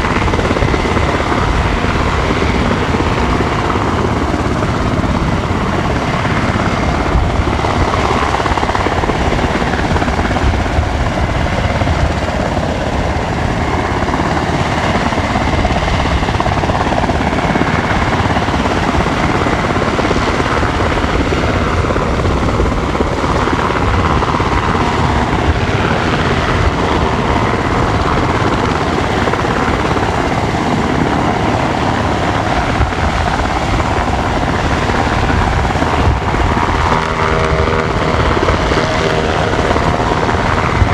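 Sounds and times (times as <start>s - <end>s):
helicopter rotor noise: 0.0s - 40.9s
high turbine whine: 0.0s - 40.9s.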